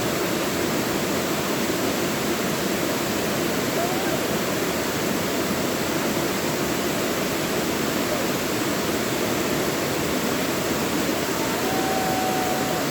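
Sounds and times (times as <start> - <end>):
stream rushing over rocks: 0.0 - 12.9.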